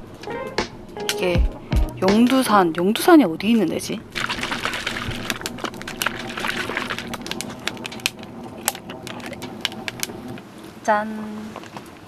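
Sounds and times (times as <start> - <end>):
bottle clicks and crackles: 4.2 - 10.4.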